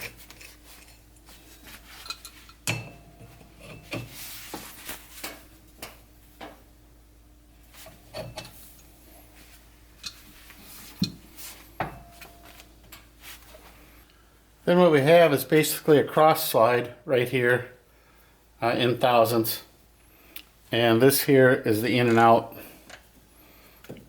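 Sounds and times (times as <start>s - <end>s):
metal ringing: 2.1s - 4.1s.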